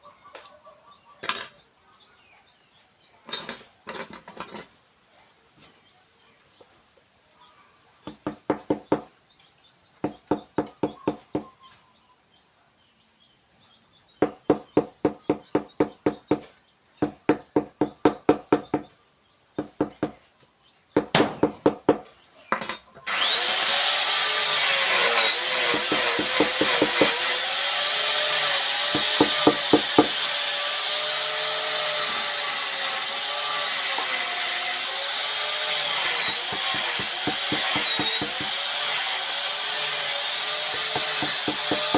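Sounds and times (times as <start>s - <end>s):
power tool whining: 23.0s - 41.9s.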